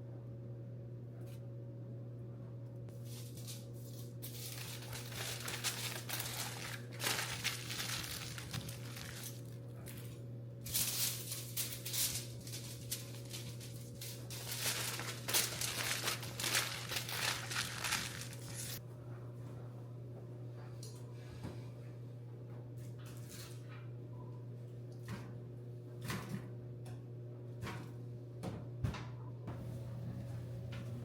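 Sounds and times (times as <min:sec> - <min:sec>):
steady low hum: 0:00.0 - 0:22.8, 0:29.1 - 0:31.0
paper or plastic crinkling: 0:03.0 - 0:10.1, 0:10.7 - 0:18.8.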